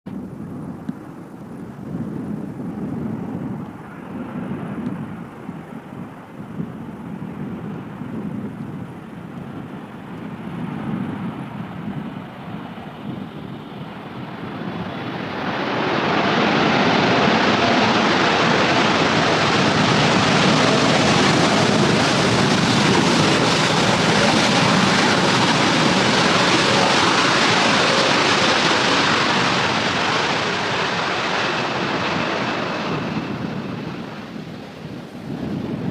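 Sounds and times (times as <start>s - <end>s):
jet airliner passing low: 1.6s - 35.9s.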